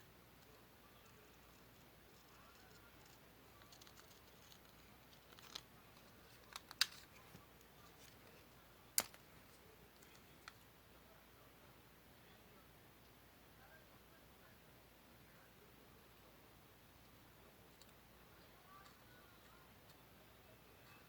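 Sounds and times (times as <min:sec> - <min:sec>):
scissors snipping paper: 0:01.5 - 0:07.1.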